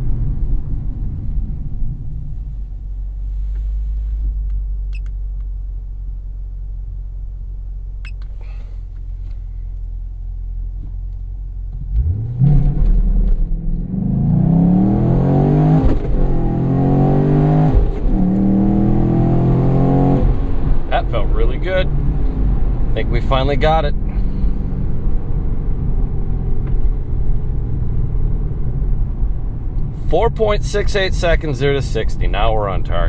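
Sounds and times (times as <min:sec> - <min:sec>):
car engine revving on launch: 0:11.8 - 0:24.5.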